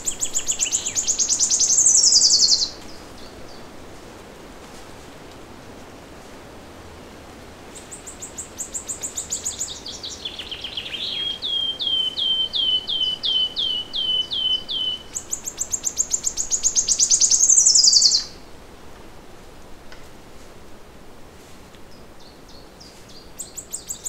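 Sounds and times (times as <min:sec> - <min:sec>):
songbird singing: 0:00.0 - 0:03.8, 0:07.7 - 0:18.5, 0:21.8 - 0:24.0.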